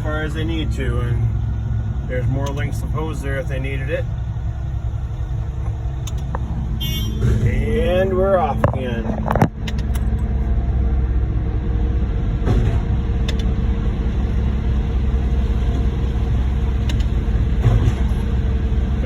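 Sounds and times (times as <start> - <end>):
heavy diesel engines rumbling: 0.0 - 19.0.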